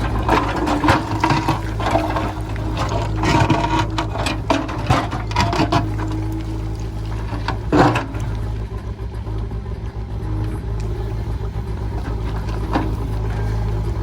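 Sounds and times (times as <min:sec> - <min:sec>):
bucket scraping stony ground: 0:00.0 - 0:08.8, 0:11.6 - 0:14.0
rocks clattering: 0:00.0 - 0:08.8
diesel engine running: 0:00.0 - 0:14.0.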